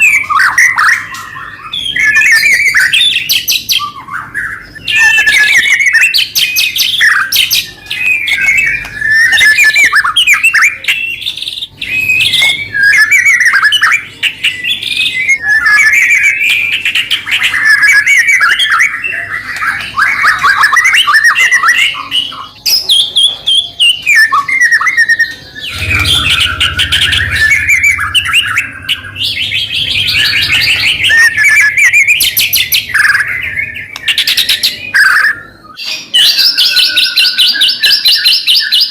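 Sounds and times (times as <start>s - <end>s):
bird singing: 0.0s - 38.9s.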